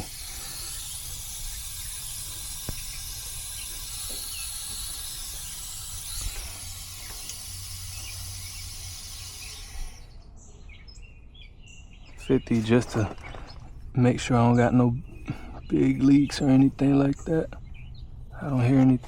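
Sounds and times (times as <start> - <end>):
gas hissing from hoses: 0.0 - 10.2.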